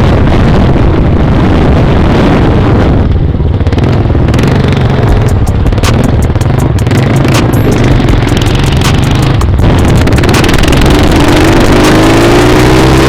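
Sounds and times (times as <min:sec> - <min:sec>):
dirt bike engine running: 0:00.0 - 0:13.0
wind rushing over microphone: 0:00.0 - 0:13.0
scattered knocks: 0:05.1 - 0:12.1.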